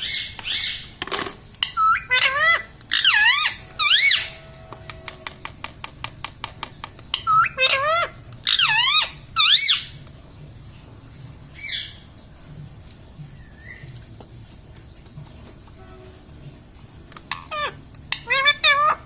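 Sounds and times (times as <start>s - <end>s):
parrot warbling calls: 1.6s - 4.6s, 7.1s - 10.0s, 17.3s - 19.0s.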